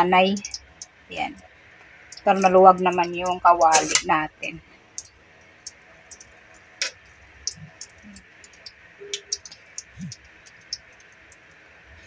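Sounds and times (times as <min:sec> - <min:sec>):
food sizzling in hot oil: 0:00.0 - 0:11.7.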